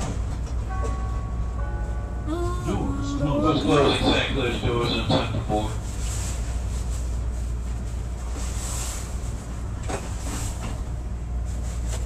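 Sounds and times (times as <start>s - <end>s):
train car low hum: 0.0s - 12.0s.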